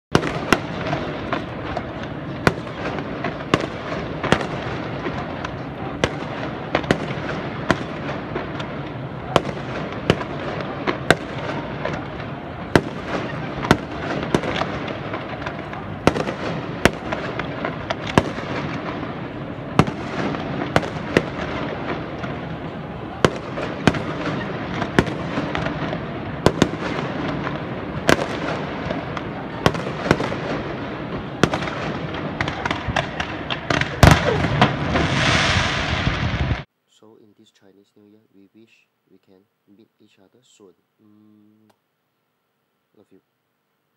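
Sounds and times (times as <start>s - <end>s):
distant fireworks and firecrackers: 0.1s - 36.7s.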